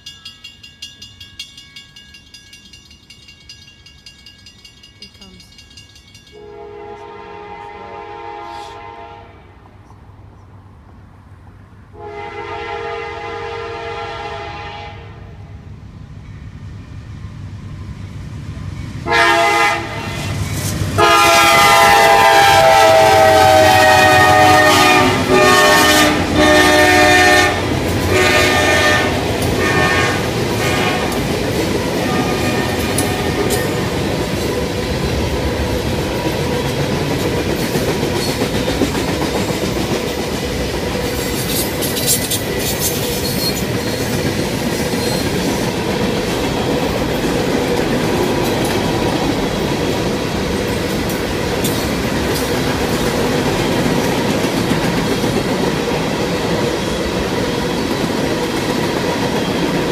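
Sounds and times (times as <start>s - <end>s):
locomotive air horn blasts: 6.4s - 9.6s, 12.0s - 15.4s, 19.0s - 20.3s, 21.0s - 31.2s, 32.0s - 33.6s
train wheels clacking on rails: 18.7s - 59.9s.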